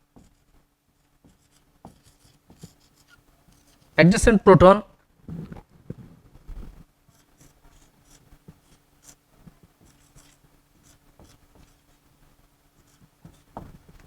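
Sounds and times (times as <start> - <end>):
pen scratching writing strokes: 0.2 - 0.5, 1.2 - 4.0, 7.1 - 14.0.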